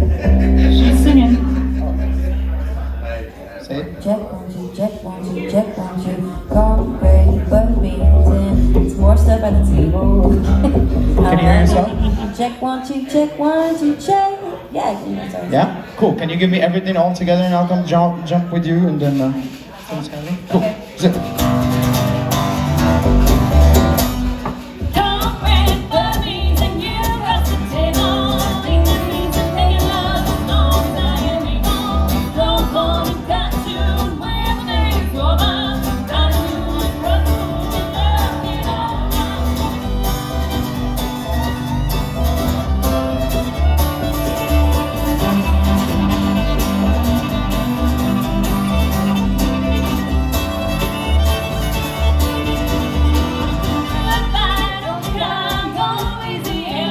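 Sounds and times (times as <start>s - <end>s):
bass steady pulse: 0.0s - 3.4s, 6.5s - 12.3s
bluegrass band playing: 0.0s - 15.4s, 16.7s - 56.9s.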